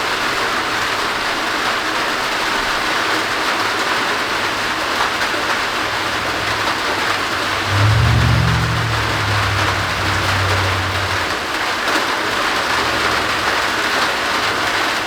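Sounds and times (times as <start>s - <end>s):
heavy rain pouring: 4.3s - 11.8s.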